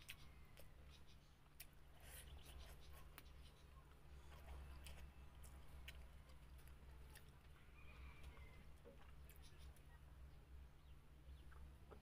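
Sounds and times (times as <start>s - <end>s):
soft chewing: 0.0s - 10.6s
low steady hum: 0.0s - 12.0s.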